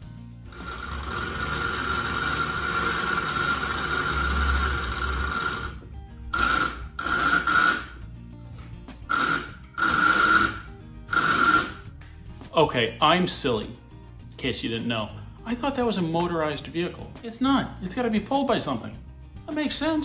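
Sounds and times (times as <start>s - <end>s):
small electric motor whine: 0.5s - 8.0s, 9.1s - 11.8s.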